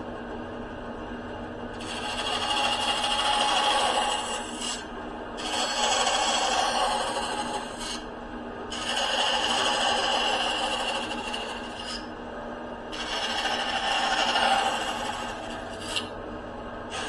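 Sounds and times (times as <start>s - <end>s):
power saw cutting wood: 1.8s - 8.0s, 8.7s - 12.1s, 12.9s - 16.1s.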